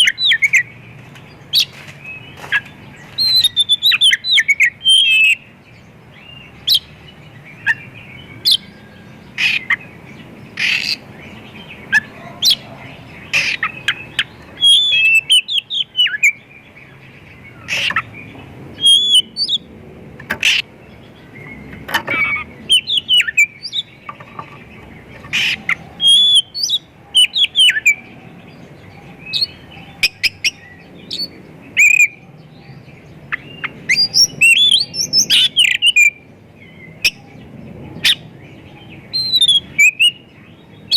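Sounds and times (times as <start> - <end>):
bird singing chirps and whistles: 0.0 - 0.8, 1.5 - 5.5, 6.2 - 9.9, 10.6 - 18.1, 18.7 - 19.7, 21.3 - 24.4, 25.3 - 40.9.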